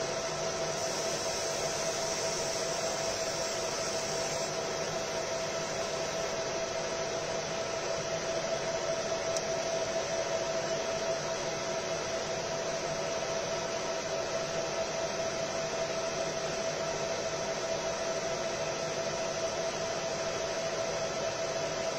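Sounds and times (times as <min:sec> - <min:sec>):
laser marking machine whirring: 0:00.0 - 0:13.2.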